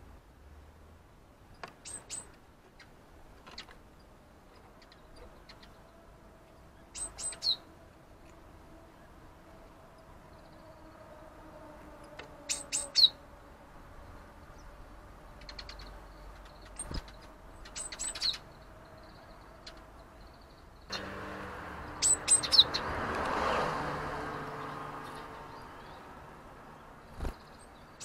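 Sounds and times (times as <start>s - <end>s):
small birds calling high notes: 6.8s - 7.7s, 12.3s - 13.2s, 15.4s - 23.0s.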